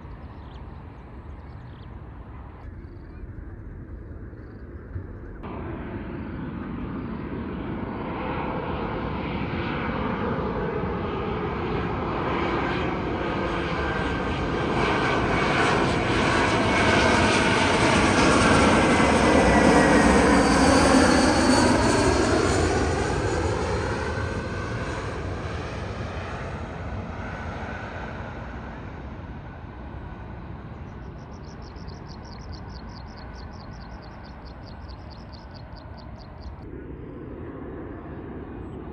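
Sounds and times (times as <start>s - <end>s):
jet engine roar: 0.0s - 38.9s
rapid high-pitched chirping: 31.0s - 36.6s.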